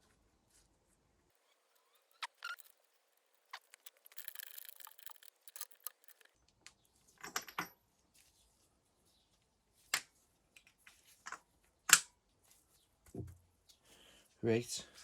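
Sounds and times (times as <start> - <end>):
metal parts rattling: 2.4 - 6.3
hand tools clicking and tapping: 3.6 - 6.3.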